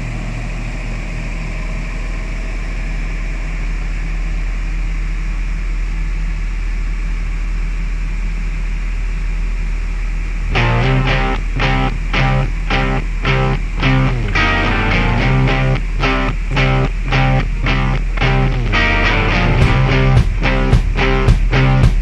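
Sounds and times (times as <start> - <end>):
diesel engine running: 0.0 - 22.0
music with guitar: 10.5 - 22.0.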